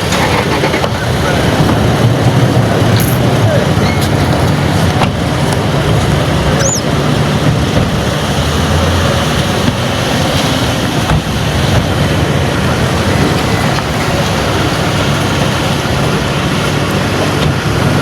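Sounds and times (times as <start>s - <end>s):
vehicle engine running: 0.0s - 18.0s
faint high chirp: 6.6s - 6.9s.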